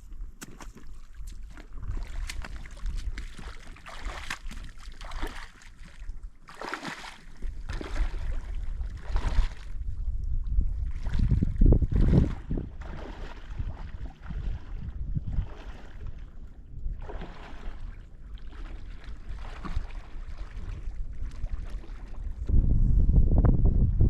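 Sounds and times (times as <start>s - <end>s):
wind buffeting microphone: 7.4s - 24.0s.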